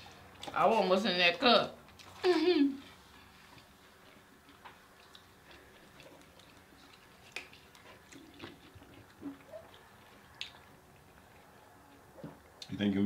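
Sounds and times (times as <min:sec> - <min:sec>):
quiet chewing and mouth clicks: 0:01.8 - 0:02.2, 0:02.8 - 0:12.8.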